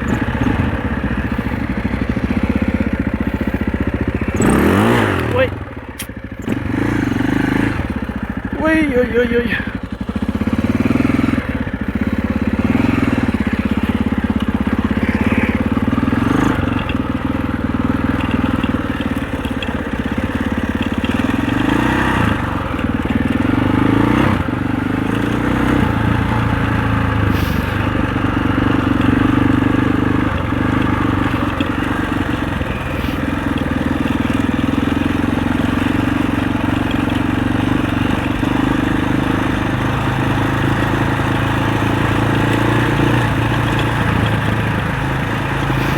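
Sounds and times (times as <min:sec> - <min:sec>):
motorcycle engine revving under load: 0:00.0 - 0:45.9.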